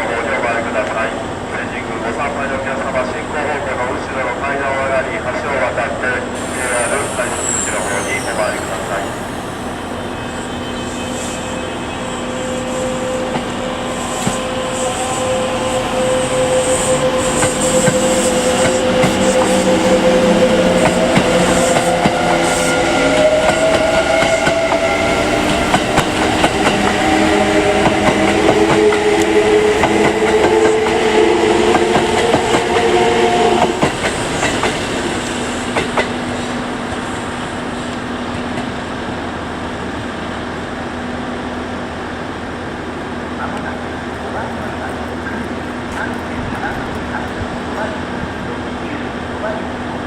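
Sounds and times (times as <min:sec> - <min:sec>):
train motors whining: 0:11.2 - 0:36.1.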